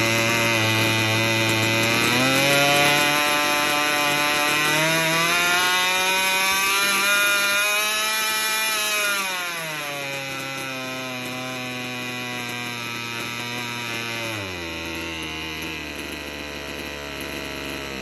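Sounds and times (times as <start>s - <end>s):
small two-stroke engine revving: 0.0s - 18.0s.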